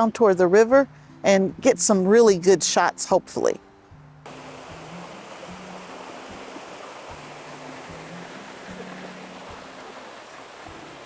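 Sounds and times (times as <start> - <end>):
soft background music: 0.0 - 11.0
river water rushing: 4.3 - 11.0.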